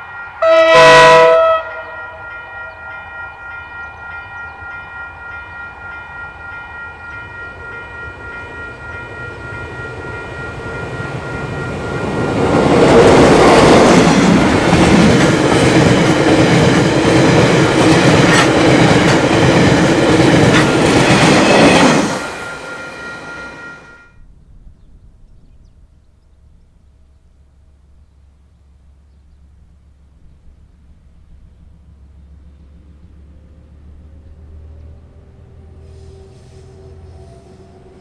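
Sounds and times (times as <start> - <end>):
passing train rushing: 0.0 - 24.1, 31.8 - 38.0.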